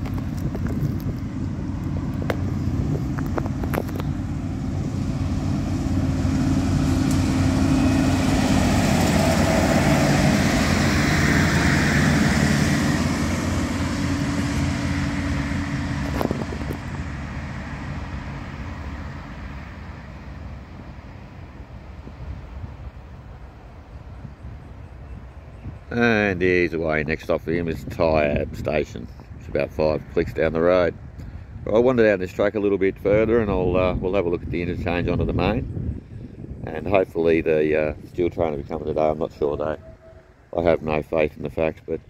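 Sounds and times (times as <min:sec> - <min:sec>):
diesel railcar engine running: 0:00.0 - 0:26.0, 0:34.8 - 0:42.0
wheel and rail noise: 0:00.0 - 0:31.2, 0:36.6 - 0:42.0.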